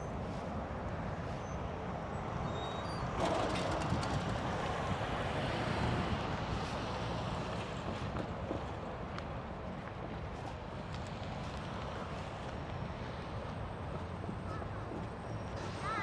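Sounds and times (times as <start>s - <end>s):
vehicle noise: 3.2s - 7.2s.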